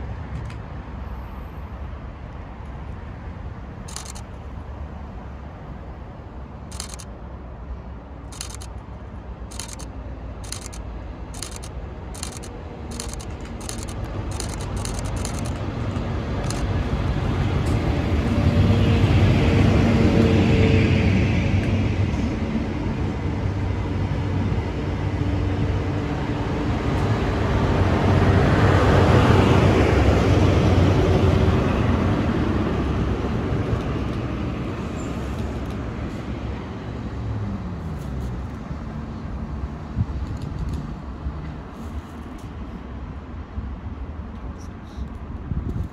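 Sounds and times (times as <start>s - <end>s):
trains passing at speed: 0.0s - 40.2s
sharp ticks: 6.7s - 7.1s, 8.3s - 8.8s, 9.5s - 10.8s, 11.4s - 16.7s.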